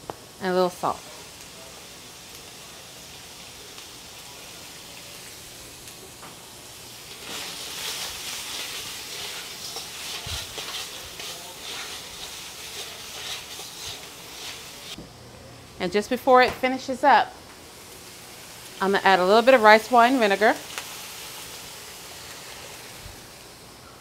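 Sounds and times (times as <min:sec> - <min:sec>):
meat sizzling in a wok: 0:00.0 - 0:15.0, 0:16.7 - 0:24.0
stirring strokes: 0:07.2 - 0:15.0.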